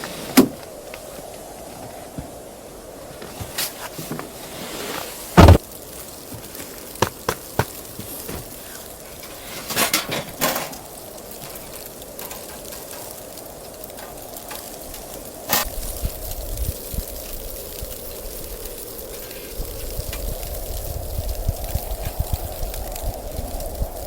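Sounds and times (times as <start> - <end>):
steady low hiss: 0.0 - 24.0
scraping knocks: 3.2 - 5.6
heavy thump: 5.4 - 5.6.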